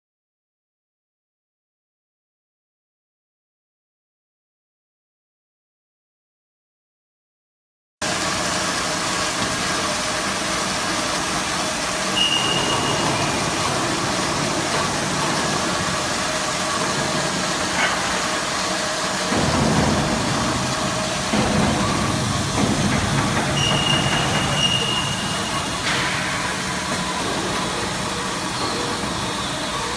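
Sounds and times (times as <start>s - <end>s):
band saw machine running: 8.0s - 29.9s.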